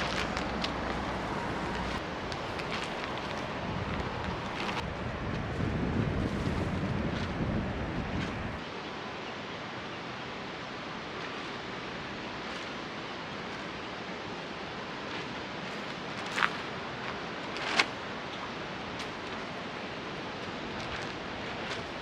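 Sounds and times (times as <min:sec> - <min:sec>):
wind buffeting microphone: 0:00.0 - 0:08.6
outdoor rushing noise: 0:00.0 - 0:08.7.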